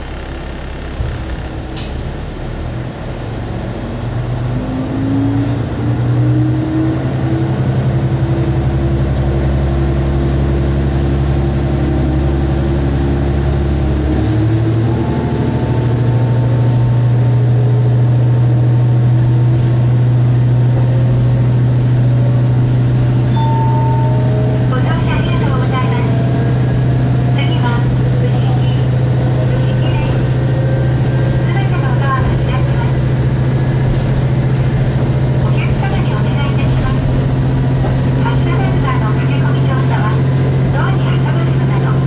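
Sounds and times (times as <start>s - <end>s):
diesel railcar engine: 0.0s - 42.0s
transmission shifting: 21.8s - 40.9s.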